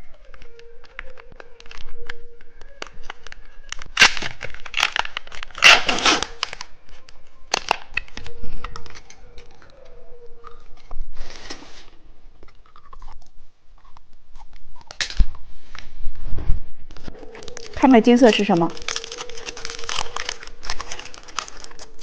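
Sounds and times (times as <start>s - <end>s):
plastic wrapper tearing: 0.0s - 11.8s, 17.0s - 22.0s
plastic wrapper crinkling: 0.0s - 15.9s, 16.9s - 22.0s.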